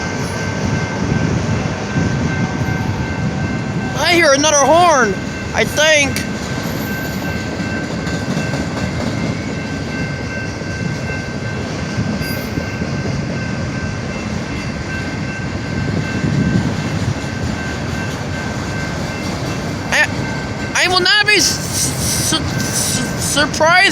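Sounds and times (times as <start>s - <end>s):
train wheels rumbling on rails: 0.0s - 23.9s.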